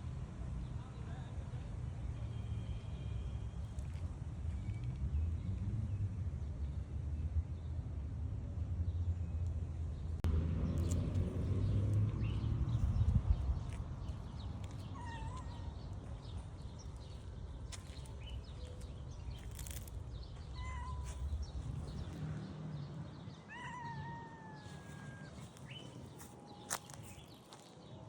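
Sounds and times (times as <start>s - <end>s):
cat meowing: 14.9s - 15.7s, 20.5s - 21.4s.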